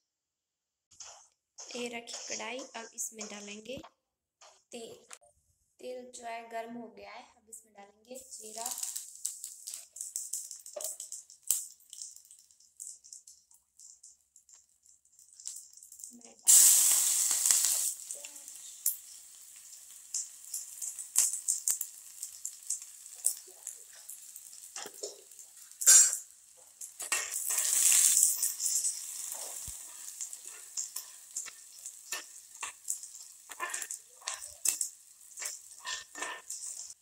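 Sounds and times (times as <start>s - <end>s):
seeds and garlic sizzling in oil: 1.0s - 3.8s, 8.1s - 37.0s
spatula scraping metal pan: 33.5s - 34.8s, 35.4s - 37.0s.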